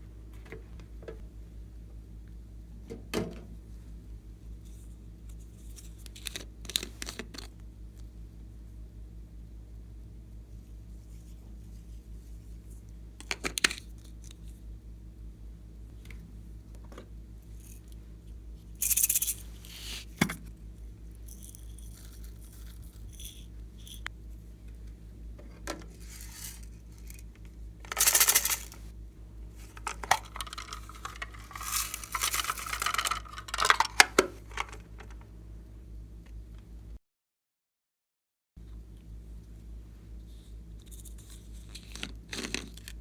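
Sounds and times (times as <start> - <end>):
rustling: 25.9 - 27.2, 27.9 - 28.8, 29.6 - 35.2
slime handling clicks and rattles: 29.7 - 35.2.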